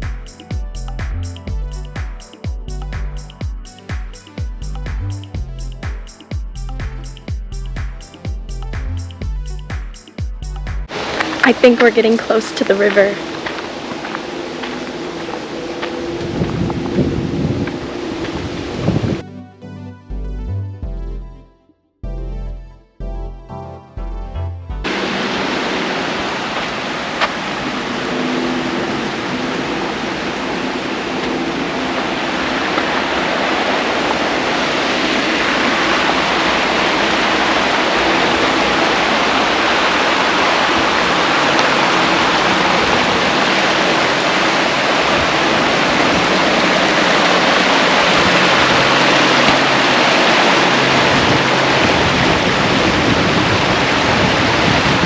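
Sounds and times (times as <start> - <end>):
river water rushing over rapids: 10.9 - 19.1, 24.9 - 55.0.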